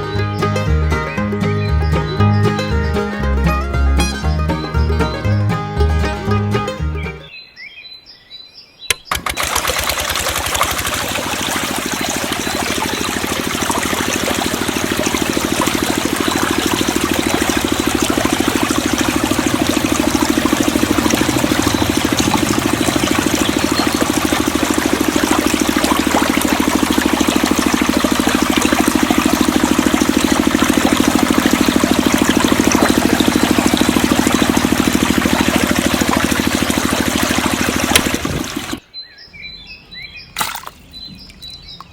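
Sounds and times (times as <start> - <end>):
water pump pulsing: 9.1 - 38.8
water rushing and splashing: 9.1 - 38.8.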